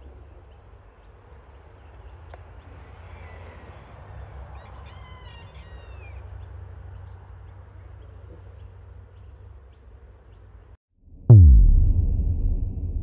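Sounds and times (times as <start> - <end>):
steady low rumble: 11.1 - 13.0.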